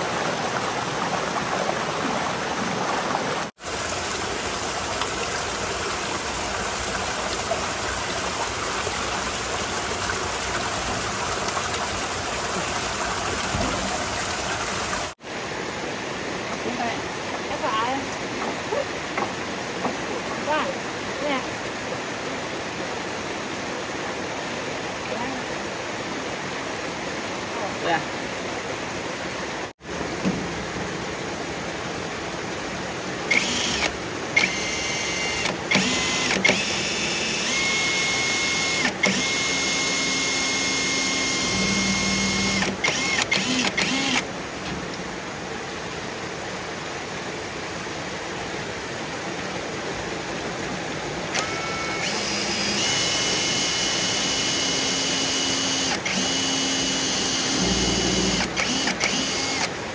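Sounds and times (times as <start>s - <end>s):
running water: 0.0s - 59.9s
small electric motor whirring: 33.3s - 44.2s, 51.4s - 59.7s.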